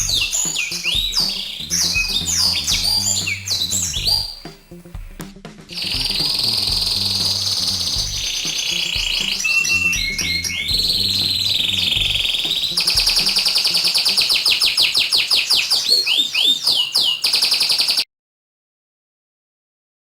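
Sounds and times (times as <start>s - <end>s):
songbird trills and chirps: 0.0s - 4.7s, 5.8s - 18.0s
low hum: 0.0s - 13.6s.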